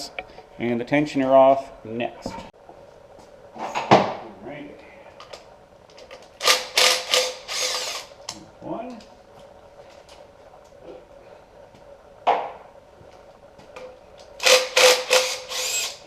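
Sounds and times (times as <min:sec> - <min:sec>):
power tool running in bursts: 0:06.4 - 0:08.1, 0:14.4 - 0:16.0.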